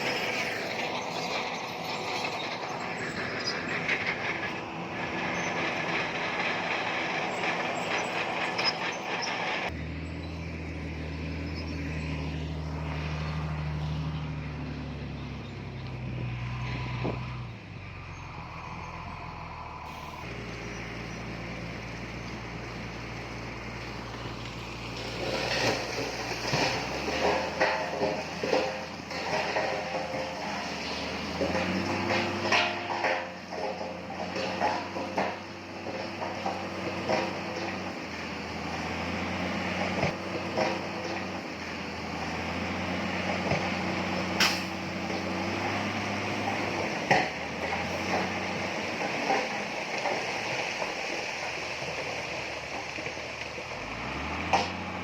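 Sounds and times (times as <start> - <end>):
clanking grinding of stone: 0.0 - 9.8, 24.3 - 54.8
diesel engine hum: 0.0 - 55.0.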